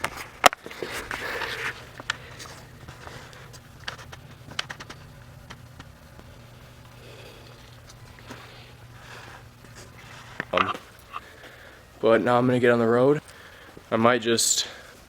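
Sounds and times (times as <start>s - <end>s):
steady low hum: 0.0s - 15.0s
sharp clicks: 1.7s - 11.4s.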